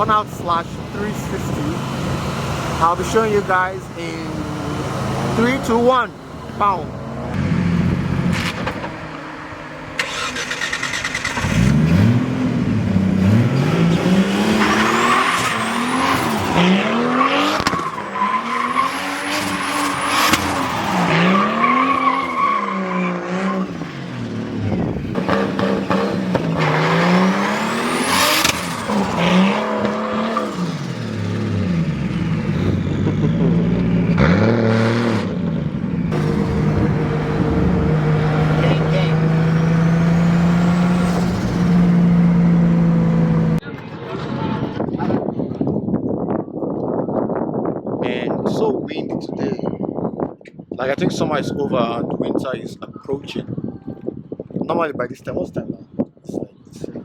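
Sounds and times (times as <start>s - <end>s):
tyres squealing: 0.0s - 7.2s, 13.5s - 31.6s, 36.2s - 43.5s
car engine revving: 0.0s - 44.8s.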